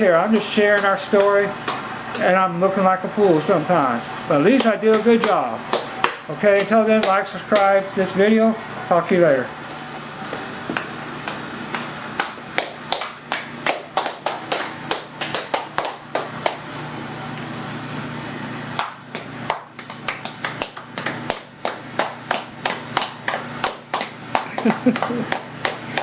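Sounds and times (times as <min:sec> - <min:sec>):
steady low hum: 0:00.0 - 0:26.0
sharp hand claps: 0:00.4 - 0:01.8, 0:04.6 - 0:07.8, 0:10.7 - 0:16.7, 0:18.8 - 0:26.0.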